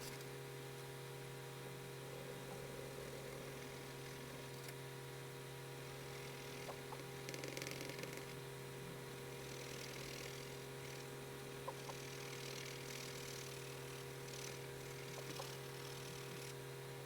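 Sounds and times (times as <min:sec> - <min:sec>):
electrical hum: 0:00.0 - 0:17.0
pencil scratching on paper: 0:11.7 - 0:16.6.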